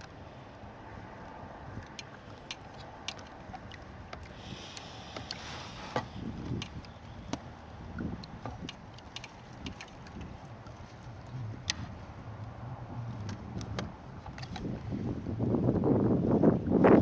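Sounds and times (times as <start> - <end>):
fishing tackle clicks and knocks: 1.8 - 11.0, 13.2 - 14.8.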